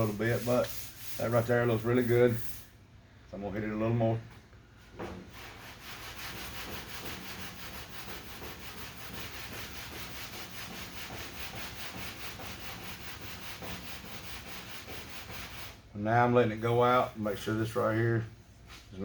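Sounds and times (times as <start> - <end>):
sandpaper rubbing on a panel: 0.0 - 2.7, 5.3 - 15.8.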